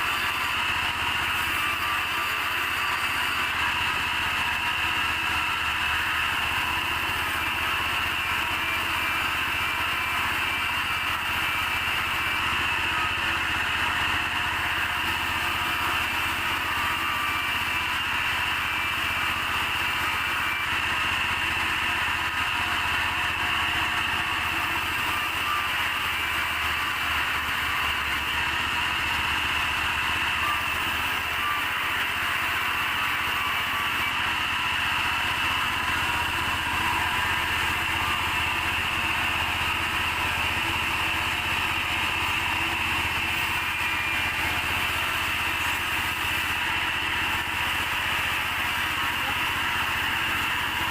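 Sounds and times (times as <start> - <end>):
high mechanical whine: 0.0 - 50.9
sawmill machinery drone: 0.0 - 50.9.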